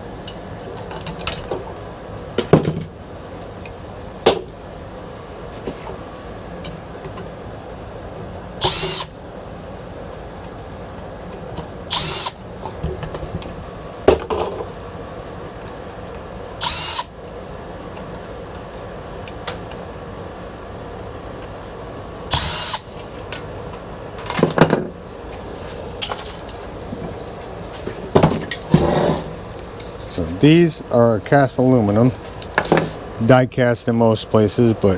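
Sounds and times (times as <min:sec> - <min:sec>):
cordless drill spinning: 0:08.6 - 0:09.1, 0:11.9 - 0:12.4, 0:16.6 - 0:17.1, 0:22.3 - 0:23.0
metal parts clinking: 0:26.0 - 0:26.7.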